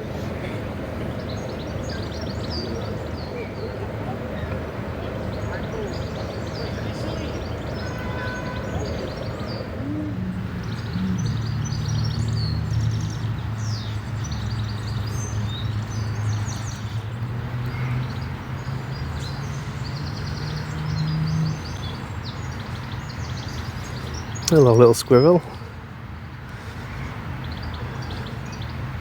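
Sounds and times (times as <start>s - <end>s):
songbirds chirping and trilling: 0.0s - 29.0s.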